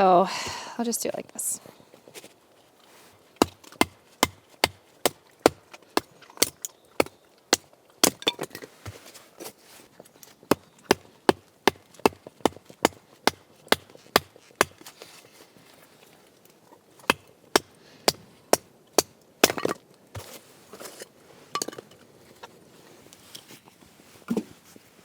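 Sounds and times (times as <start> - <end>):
baton striking knife through wood: 3.4 - 8.5, 10.5 - 14.9.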